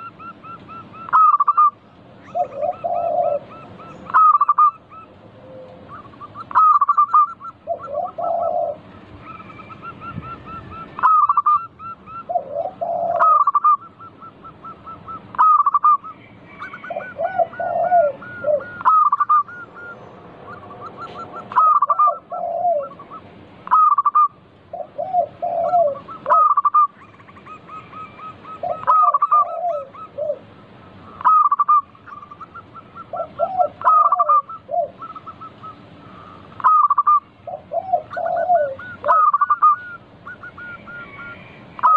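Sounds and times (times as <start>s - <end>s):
dove cooing song: 0.0s - 41.9s.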